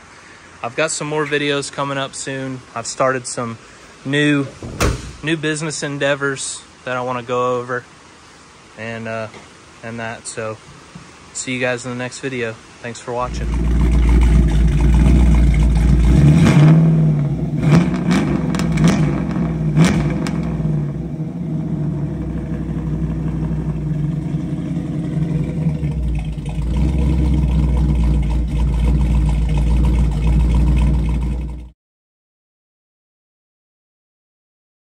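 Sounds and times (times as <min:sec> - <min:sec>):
car engine revving and idling: 0:13.3 - 0:31.7.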